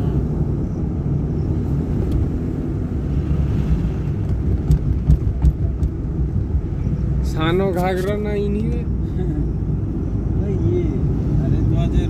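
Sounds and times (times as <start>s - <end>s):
vehicle engine and road noise: 0.0s - 12.0s
short knocks: 4.3s - 6.2s.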